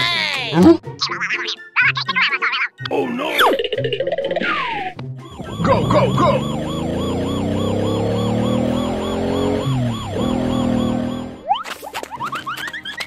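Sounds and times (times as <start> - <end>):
warbling siren-like tone: 5.2 - 11.6.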